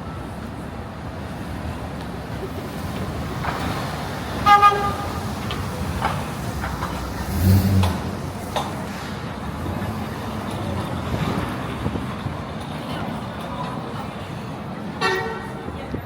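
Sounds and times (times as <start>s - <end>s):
street traffic: 0.0s - 16.0s
car horn double toot: 4.4s - 5.2s.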